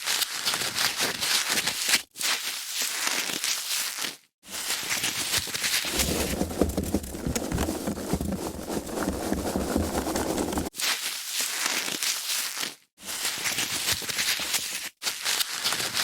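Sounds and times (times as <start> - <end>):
deeper rubbing: 5.9 - 10.7
foam packaging crackling: 5.9 - 10.7.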